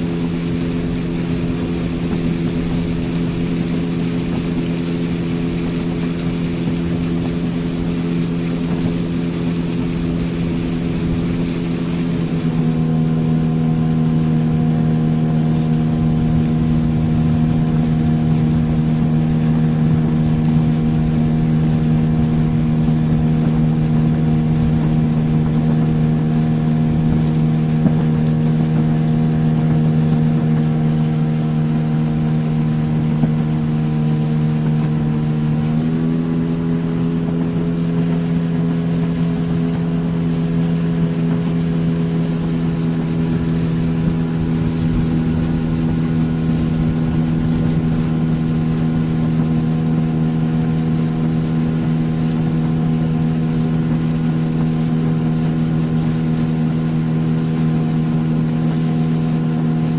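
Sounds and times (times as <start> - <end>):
motorboat engine running: 0.0 - 59.9.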